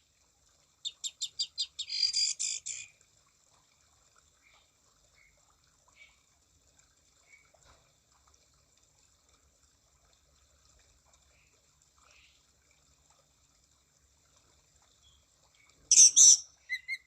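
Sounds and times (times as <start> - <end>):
faint short bird chirps: 15.9 - 17.0.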